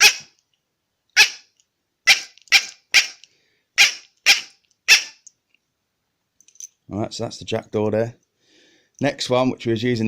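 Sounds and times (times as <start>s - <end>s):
bird call imitating jackdaw: 0.0s - 0.3s, 1.2s - 1.5s, 2.1s - 3.2s, 3.8s - 5.3s.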